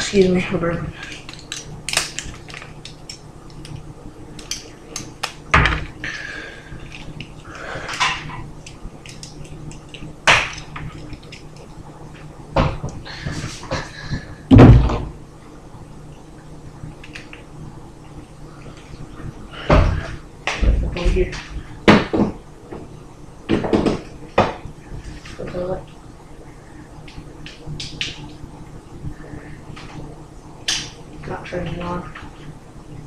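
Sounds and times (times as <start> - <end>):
faint steady hum: 0.0 - 33.0
objects clicking and knocking: 1.0 - 3.8, 6.9 - 11.7
heavy thud: 14.5 - 15.1.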